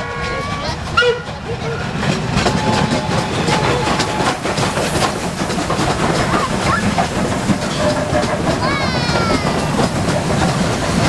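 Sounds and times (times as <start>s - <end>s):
steam locomotive clattering: 0.0s - 11.0s.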